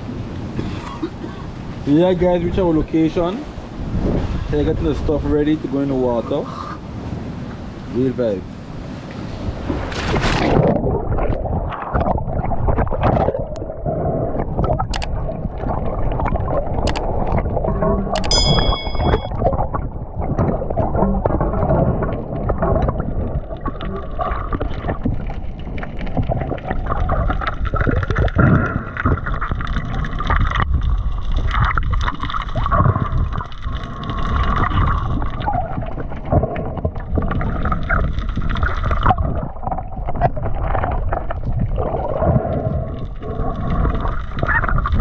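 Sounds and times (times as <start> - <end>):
knocks and splashes: 9.5 - 10.9
sea water sloshing: 19.4 - 45.0.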